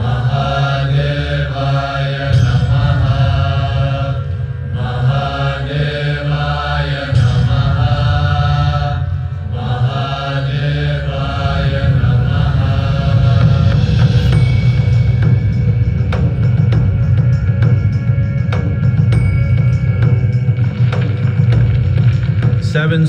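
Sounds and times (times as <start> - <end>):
steady low drone: 0.0 - 23.0.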